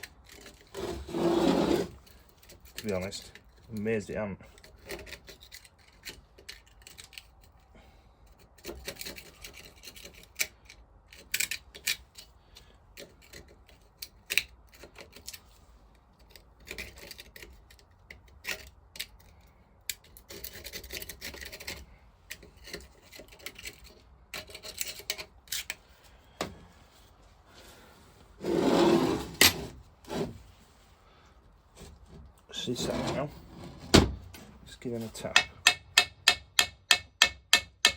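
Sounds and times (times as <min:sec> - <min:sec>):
metal scraping on metal: 0:00.0 - 0:06.1, 0:28.4 - 0:30.4, 0:32.5 - 0:35.7.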